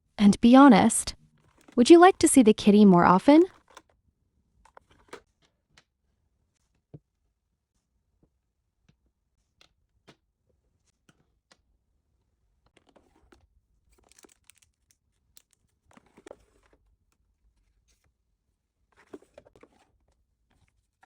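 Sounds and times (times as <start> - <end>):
packaging rustling and crinkling: 12.8 - 16.9.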